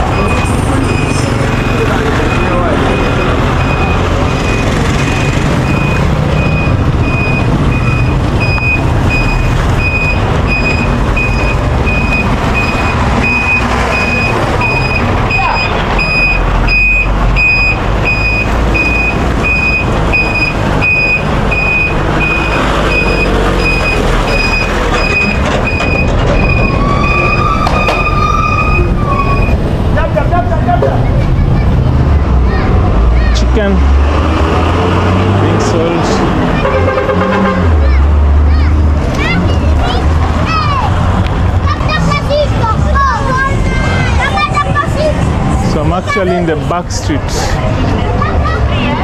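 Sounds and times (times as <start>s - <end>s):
truck reversing alarm beeping: 0.0s - 29.8s
low rumble of engines and traffic: 0.0s - 49.0s.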